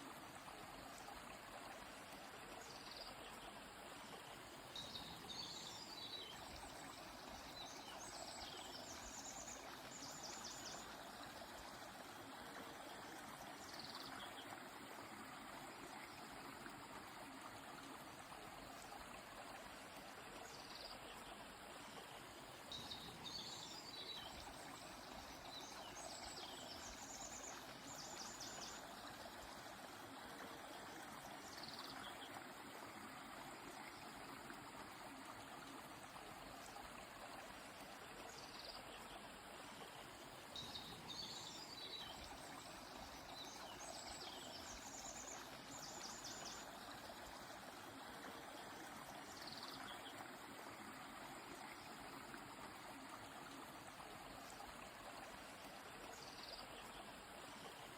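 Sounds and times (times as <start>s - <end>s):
flowing stream: 0.0s - 57.9s.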